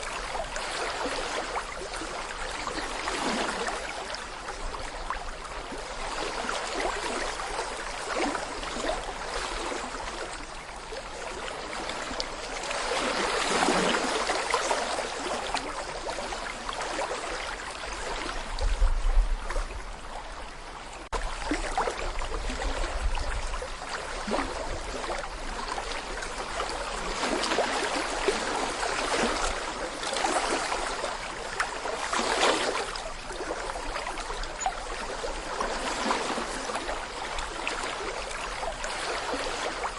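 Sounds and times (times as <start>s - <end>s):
brook babbling over stones: 0.0s - 39.9s.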